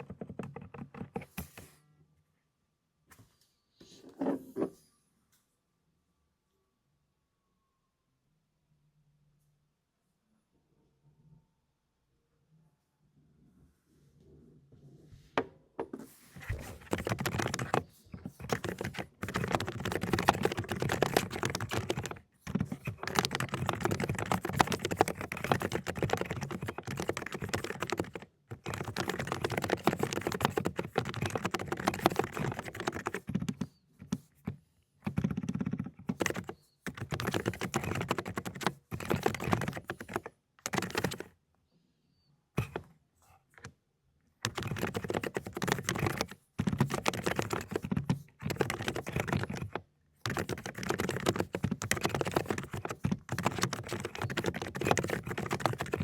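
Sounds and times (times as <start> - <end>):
fast typing on mechanical keyboard: 0.0 - 1.3, 16.4 - 41.3, 42.6 - 42.8, 44.4 - 56.0.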